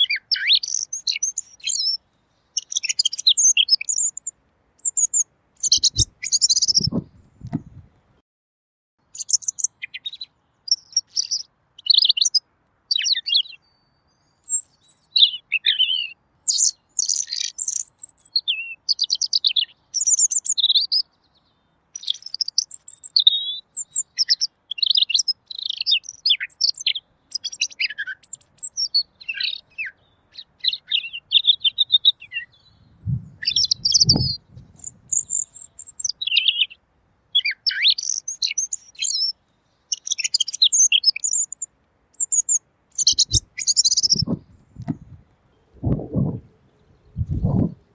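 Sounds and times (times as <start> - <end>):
bird singing warbled phrases: 0.0 - 7.8, 9.0 - 47.9
low rumbling bump: 6.8 - 7.9, 32.9 - 33.4, 44.2 - 45.2, 47.2 - 47.8.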